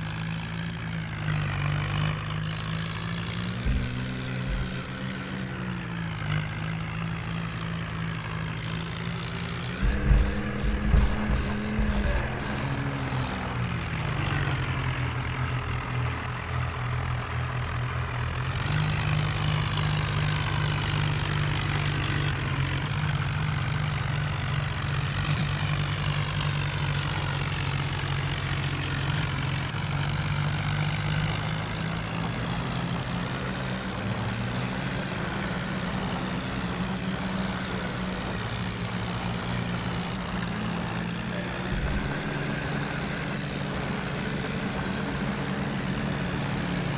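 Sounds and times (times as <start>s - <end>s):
tractor engine running: 0.0s - 46.9s.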